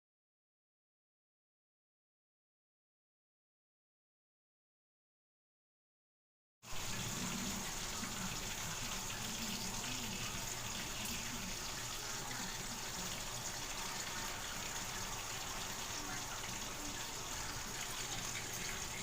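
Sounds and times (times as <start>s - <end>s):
water running from a tap: 6.7s - 19.0s.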